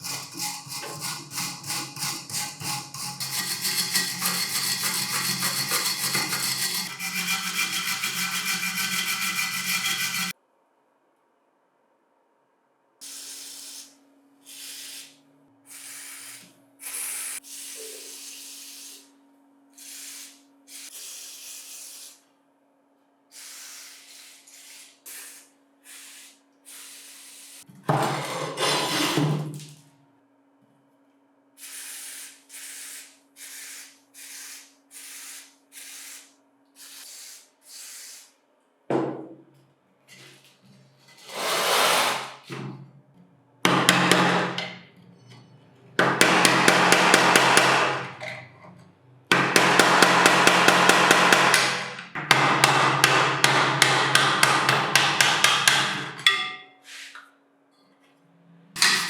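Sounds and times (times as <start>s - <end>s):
scraping: 3.0s - 10.3s
rubbing strokes: 3.3s - 10.3s.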